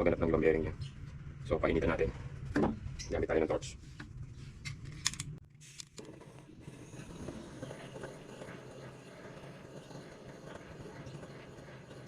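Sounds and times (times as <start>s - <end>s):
gas torch flame hissing: 6.0s - 12.0s.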